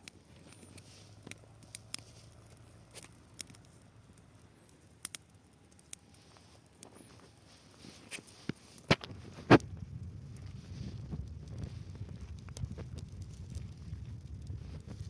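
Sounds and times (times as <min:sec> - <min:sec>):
dry grass burning and crackling: 0:00.0 - 0:15.0.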